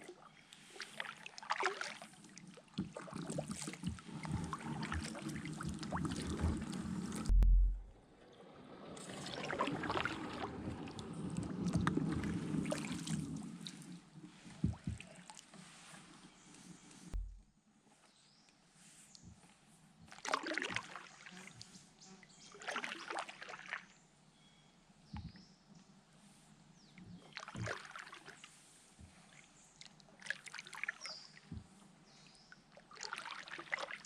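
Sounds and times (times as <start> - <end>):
water sloshing and splashing: 0.0 - 17.5, 20.0 - 24.0, 27.0 - 34.0
heavy low thump: 7.2 - 8.0, 17.1 - 17.5.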